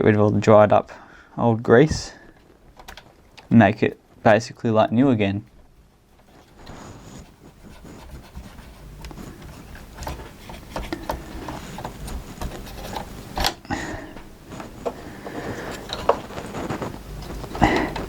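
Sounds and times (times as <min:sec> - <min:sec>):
cotton bud scrubbing mechanism: 0:06.3 - 0:18.0.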